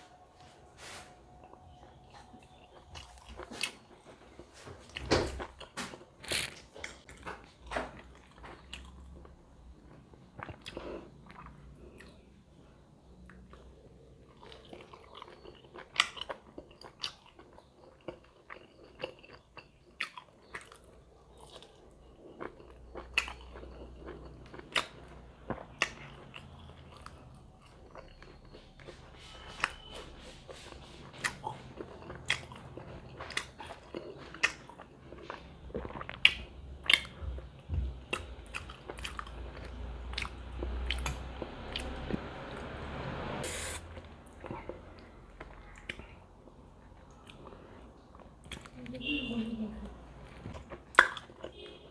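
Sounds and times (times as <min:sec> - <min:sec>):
chewing and biting food: 0:01.4 - 0:12.2, 0:13.1 - 0:48.8, 0:50.2 - 0:51.9
wet mouth clicks: 0:43.4 - 0:43.9.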